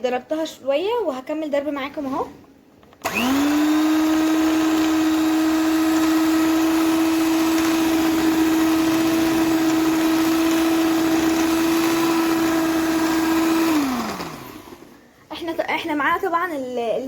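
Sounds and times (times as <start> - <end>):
electric mixer whine: 3.0 - 15.0.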